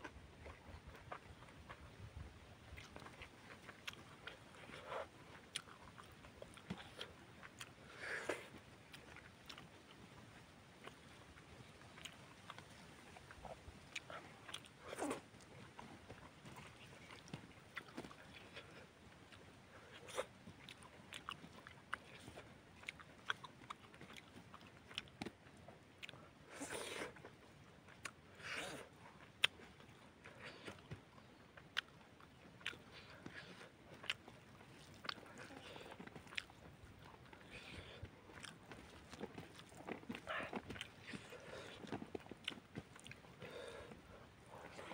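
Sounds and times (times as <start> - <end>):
chewing with wet lip smacks: 0.0 - 44.9.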